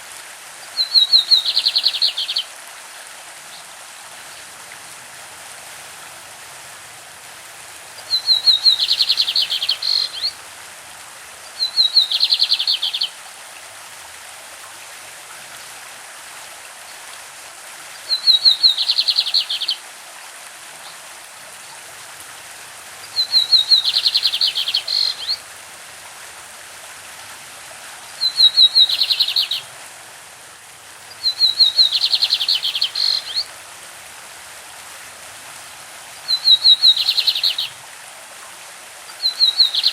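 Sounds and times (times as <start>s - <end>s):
stream rushing: 0.0s - 39.9s
bird singing high trills: 8.1s - 10.3s, 23.2s - 25.4s, 31.2s - 33.4s.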